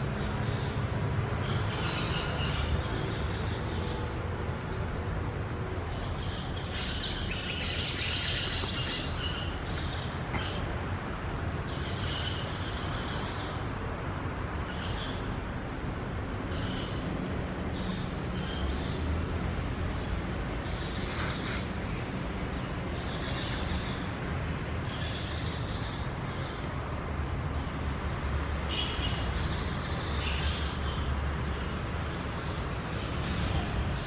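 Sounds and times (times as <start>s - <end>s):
birds chirping: 0.0s - 10.8s.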